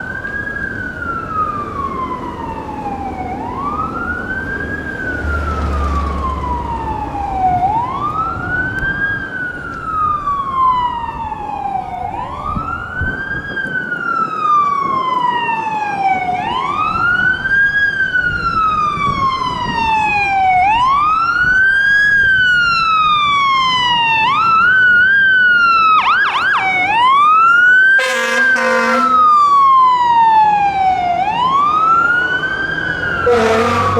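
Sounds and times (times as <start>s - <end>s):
siren wailing: 0.0s - 33.9s
siren yelps: 0.0s - 33.9s
truck horn blast: 28.0s - 29.3s, 33.2s - 33.9s.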